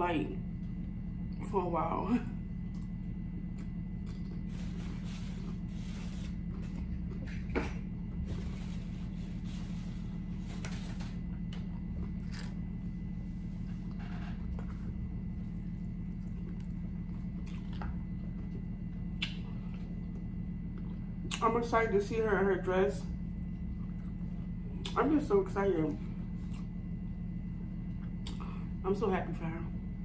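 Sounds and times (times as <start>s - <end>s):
steady low hum: 0.0s - 30.0s
person chewing food: 2.6s - 8.4s, 11.2s - 12.8s, 13.8s - 21.4s, 23.6s - 25.0s, 26.3s - 26.9s.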